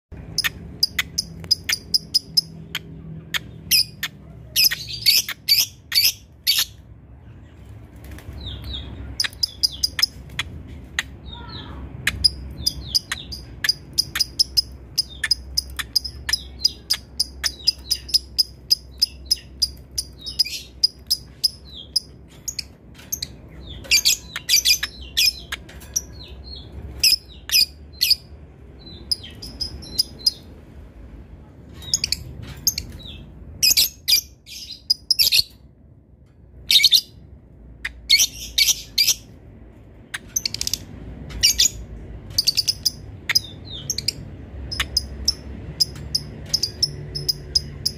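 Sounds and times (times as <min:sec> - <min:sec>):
lovebird chattering: 0:00.2 - 0:06.8, 0:09.1 - 0:26.2, 0:41.4 - 0:47.9.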